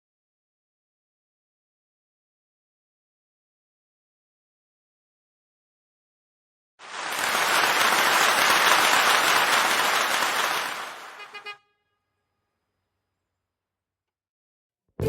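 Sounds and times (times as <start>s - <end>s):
applause: 6.8s - 11.5s.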